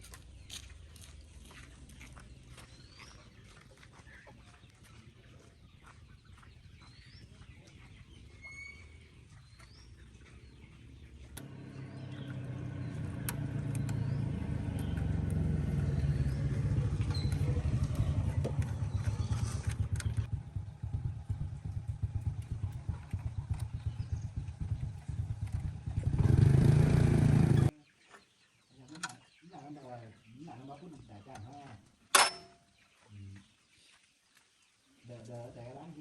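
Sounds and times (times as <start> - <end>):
tractor engine pulsing: 11.3 - 27.7.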